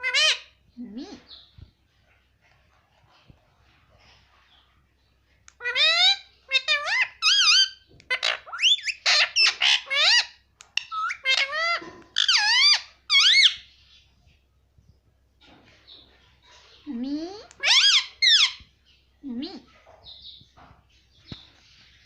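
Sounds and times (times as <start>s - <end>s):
parrot calling: 0.0s - 1.4s, 5.5s - 13.7s, 17.2s - 18.6s.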